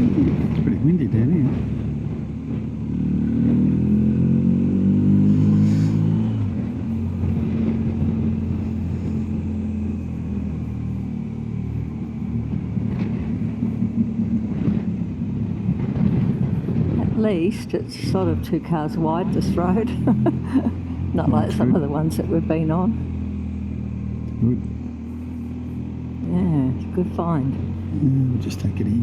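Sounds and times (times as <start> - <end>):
wind noise on microphone: 0.0 - 9.6, 11.8 - 21.8
motorcycle engine accelerating: 0.0 - 29.0.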